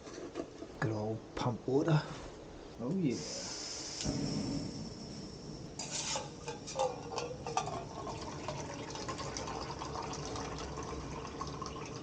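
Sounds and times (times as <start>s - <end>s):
water pouring into a cup: 7.4s - 12.0s.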